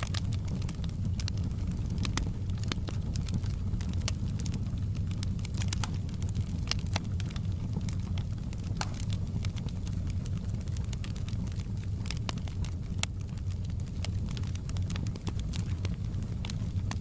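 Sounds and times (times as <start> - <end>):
low rumble of flames: 0.0 - 17.0
wood fire snaps and clicks: 0.0 - 17.0.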